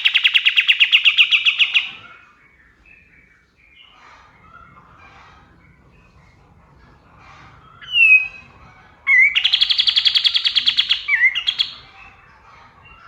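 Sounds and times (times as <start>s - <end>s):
songbird singing: 0.0s - 4.7s, 7.7s - 13.0s.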